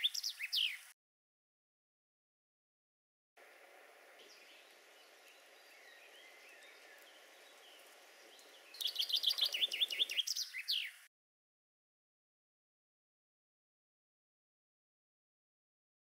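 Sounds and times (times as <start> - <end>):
distant bird calls: 0.0 - 0.9, 3.4 - 11.1
songbird chirping: 0.0 - 1.0, 3.4 - 11.1.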